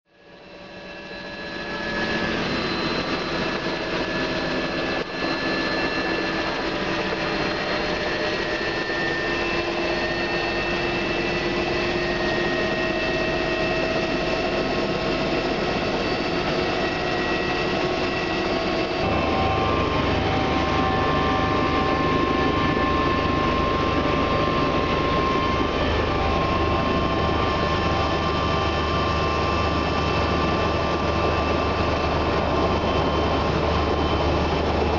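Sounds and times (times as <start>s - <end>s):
helicopter engines and rotor: 0.1s - 34.9s.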